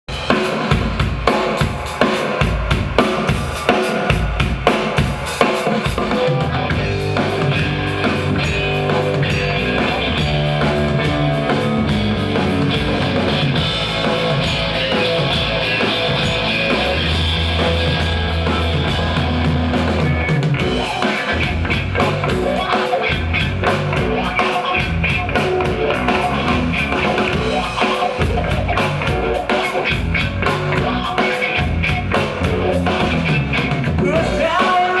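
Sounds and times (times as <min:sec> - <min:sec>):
drum kit: 0:00.0 - 0:35.0
rock band playing: 0:00.1 - 0:35.0.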